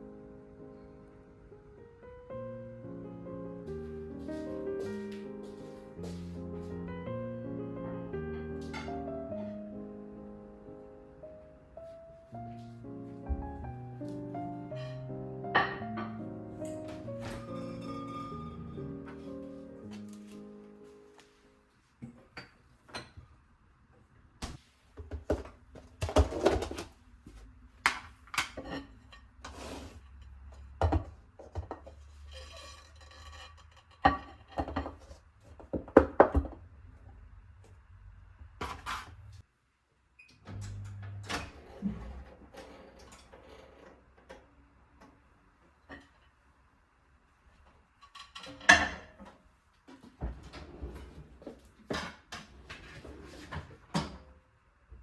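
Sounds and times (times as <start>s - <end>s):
dishes and utensils clinking: 14.8s - 20.2s, 28.4s - 35.2s, 48.0s - 49.3s.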